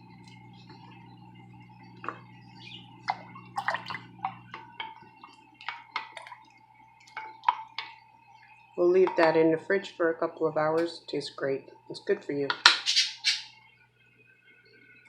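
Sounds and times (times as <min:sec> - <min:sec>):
faint steady hum: 0:00.0 - 0:15.0
slices plopping into water: 0:03.1 - 0:04.6.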